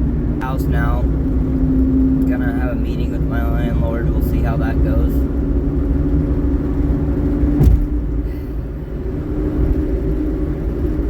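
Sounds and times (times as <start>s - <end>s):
vehicle engine and road rumble: 0.0s - 11.0s
sharp knock: 7.6s - 7.9s.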